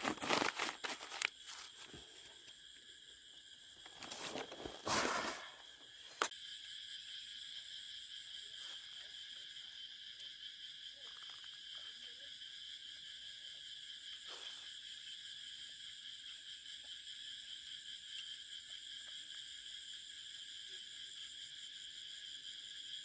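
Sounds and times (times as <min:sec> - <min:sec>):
insects buzzing: 0:00.0 - 0:23.0
short rustle: 0:03.9 - 0:06.3.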